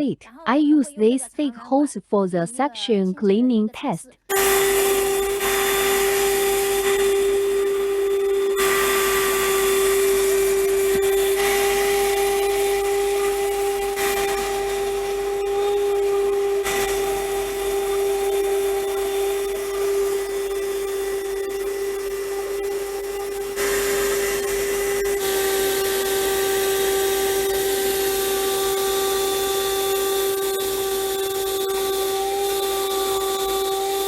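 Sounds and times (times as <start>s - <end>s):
handheld vacuum cleaner running: 4.3s - 34.0s.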